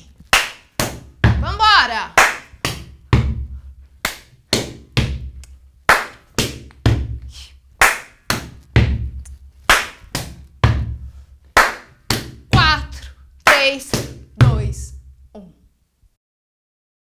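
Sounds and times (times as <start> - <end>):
hand claps: 0.0 - 1.2, 2.1 - 3.4, 4.0 - 10.9, 11.5 - 14.2
slaps on rubber boots: 0.2 - 1.6, 2.2 - 14.6
boot stomps on a platform: 10.2 - 11.1.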